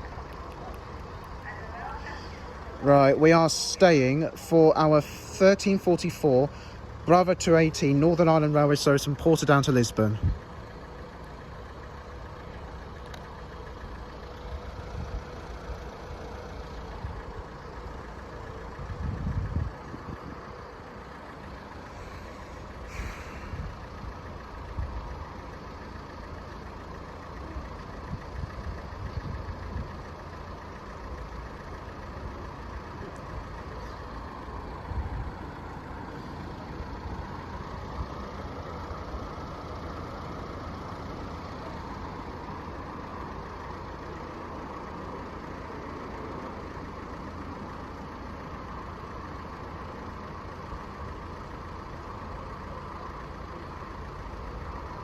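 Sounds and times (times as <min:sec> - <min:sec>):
vehicle engines idling: 0:00.0 - 0:55.0
low rumbles: 0:09.1 - 0:44.0
brief hiss: 0:21.9 - 0:23.7.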